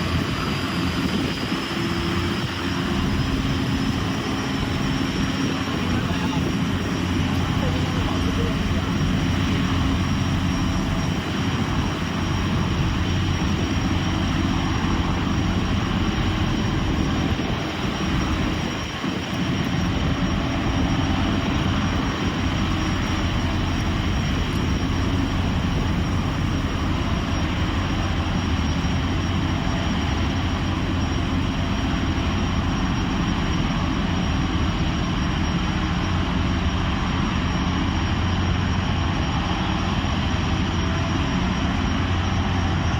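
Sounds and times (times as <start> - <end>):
gas turbine engines whining: 0.0 - 42.9.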